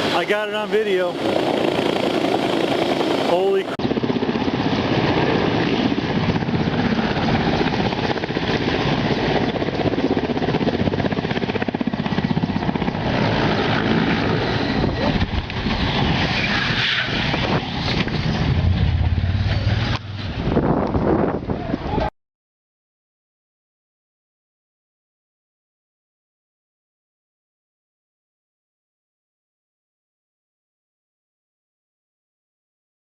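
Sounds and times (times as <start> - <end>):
helicopter rotor chopping: 0.0 - 21.8
wind buffeting microphone: 3.8 - 22.1.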